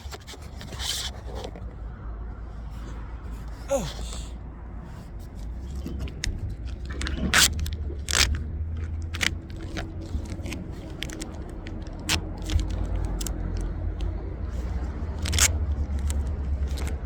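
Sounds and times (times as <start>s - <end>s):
plastic film crackling: 6.7s - 13.7s, 15.2s - 17.0s.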